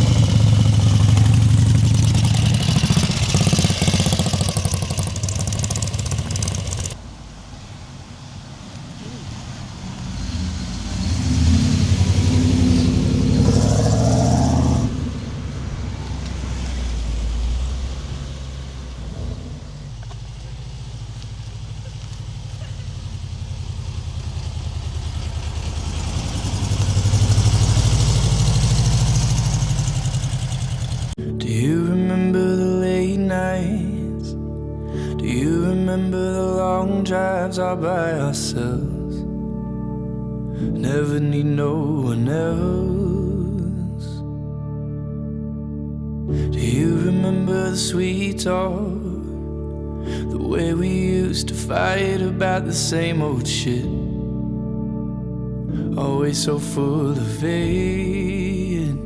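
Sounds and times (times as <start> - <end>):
vehicle engine running: 0.0 - 32.2.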